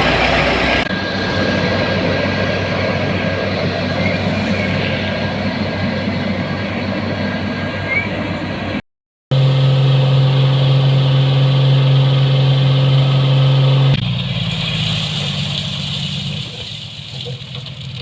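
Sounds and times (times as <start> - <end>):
construction machine engine running: 0.0 - 18.0.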